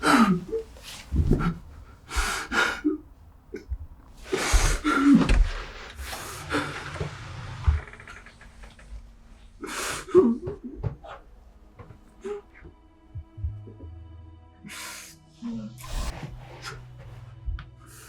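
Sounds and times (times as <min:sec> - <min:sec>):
person gasping and breathing heavily: 0:00.0 - 0:06.8.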